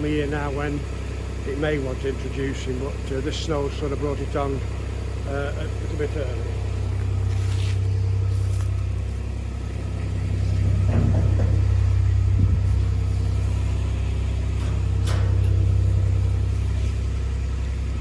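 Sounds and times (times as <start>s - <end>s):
vehicle engine droning: 0.0s - 18.0s
faint knocks: 10.6s - 12.7s.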